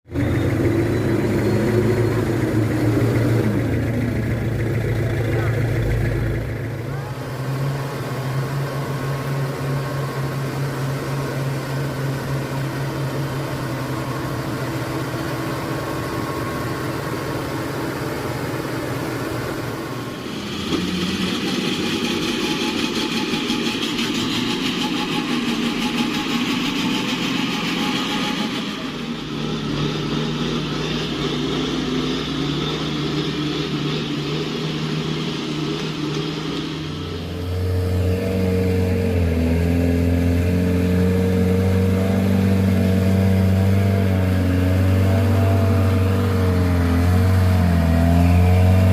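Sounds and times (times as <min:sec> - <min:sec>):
truck diesel engine under load: 0:00.0 - 0:48.9
hiss: 0:18.6 - 0:37.4.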